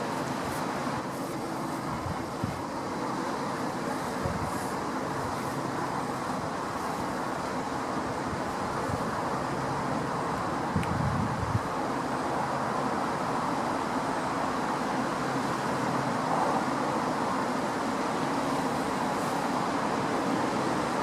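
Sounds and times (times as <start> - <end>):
vehicle running noise: 0.0 - 13.0.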